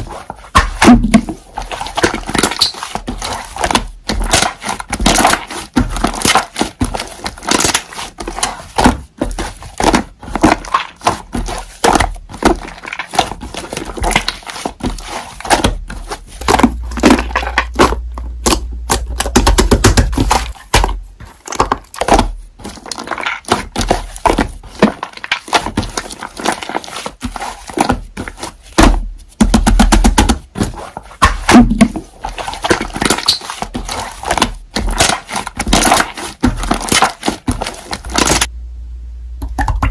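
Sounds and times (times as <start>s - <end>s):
slime squelching and popping: 0.0s - 38.5s.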